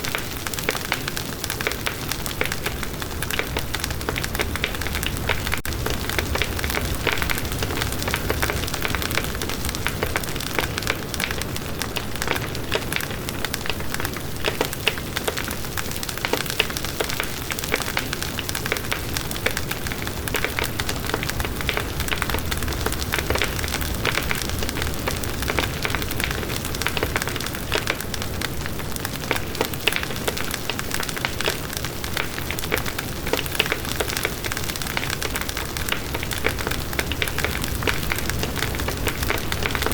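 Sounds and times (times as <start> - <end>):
campfire wood crackling: 0.0 - 39.9.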